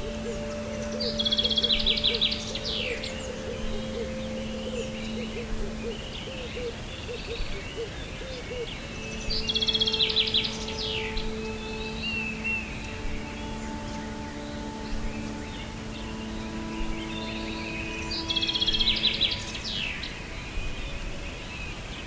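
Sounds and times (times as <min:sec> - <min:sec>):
bird trilling: 0:00.0 - 0:20.4
low humming tones: 0:00.0 - 0:21.4
faint bird chirps: 0:00.0 - 0:22.0.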